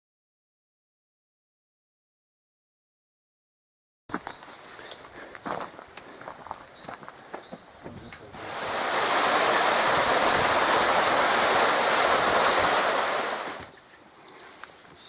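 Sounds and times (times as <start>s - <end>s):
creek rushing over waterfall: 8.3s - 13.7s.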